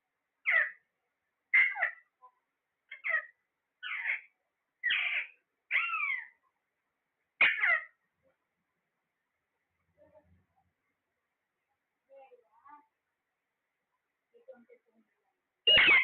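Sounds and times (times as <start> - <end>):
parrot calling: 0.4 - 0.8, 1.5 - 2.1, 2.9 - 6.4, 7.4 - 8.0, 15.7 - 16.0.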